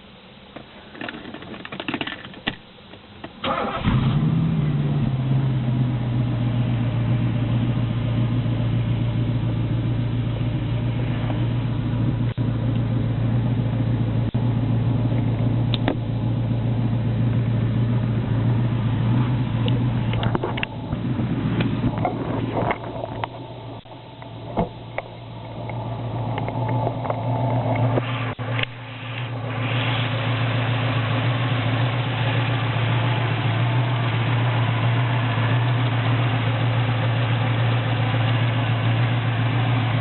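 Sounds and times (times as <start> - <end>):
car engine starting and idling: 1.1 - 40.0
engine cranking: 3.4 - 4.2.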